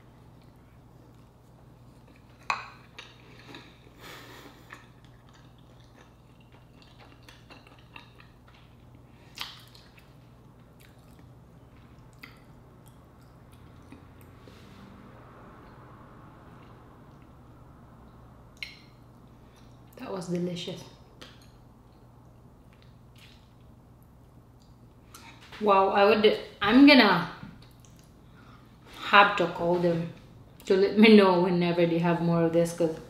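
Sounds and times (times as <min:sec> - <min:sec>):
chewing: 0:00.4 - 0:14.4, 0:27.6 - 0:28.2.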